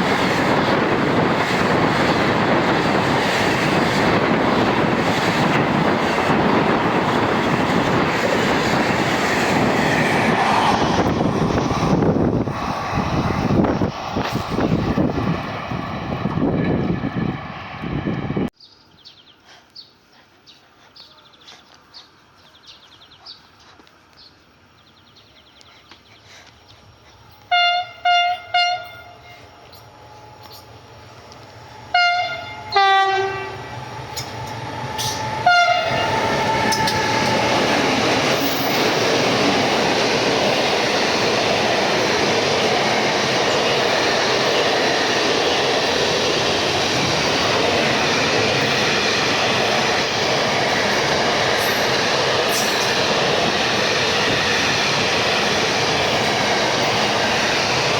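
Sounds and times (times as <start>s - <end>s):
train passing with rail noise: 0.0s - 57.9s
train horn blasts: 27.5s - 29.5s, 31.9s - 33.7s, 35.0s - 36.2s.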